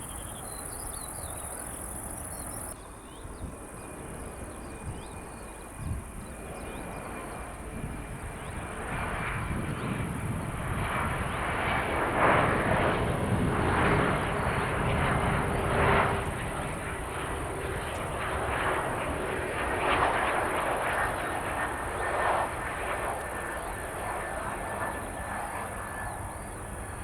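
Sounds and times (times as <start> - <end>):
jet airliner engines: 0.0 - 27.0.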